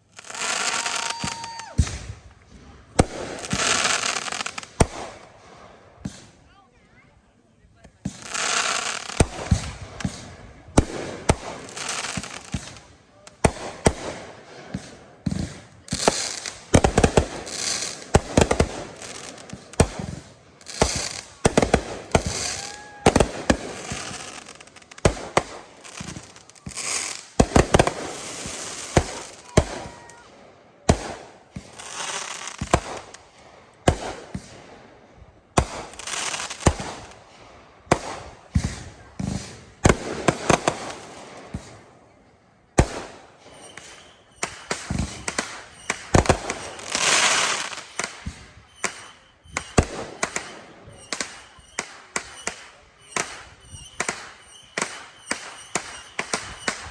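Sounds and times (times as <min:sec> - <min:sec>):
fireworks bangs: 0:00.0 - 0:06.7, 0:07.8 - 0:56.9
fireworks crackling: 0:00.0 - 0:56.9.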